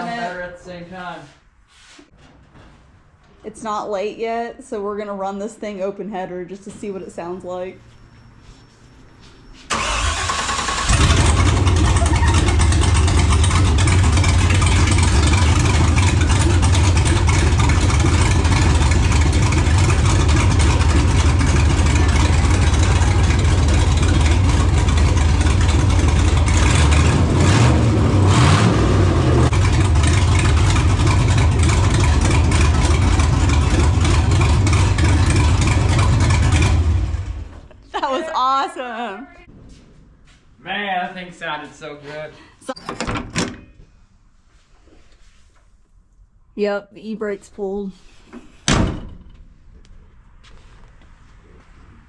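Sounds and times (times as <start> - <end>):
engine cranking: 9.7 - 28.5, 29.5 - 37.5
loud engine idling: 9.7 - 37.7.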